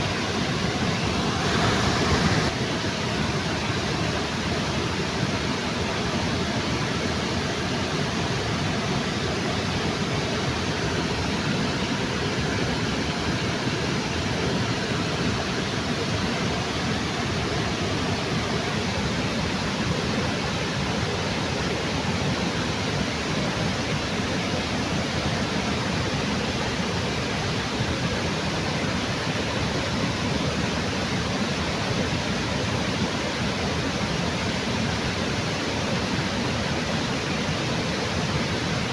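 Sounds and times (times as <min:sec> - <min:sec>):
waterfall rushing: 0:00.0 - 0:04.3.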